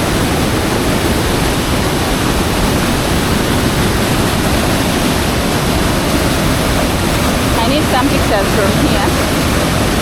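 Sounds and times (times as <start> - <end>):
water rushing over rocks: 0.0 - 10.0.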